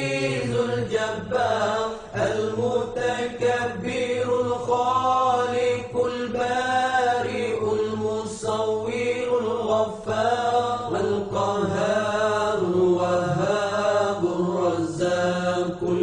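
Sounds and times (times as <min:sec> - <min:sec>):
person chanting melodically: 0:00.0 - 0:16.0.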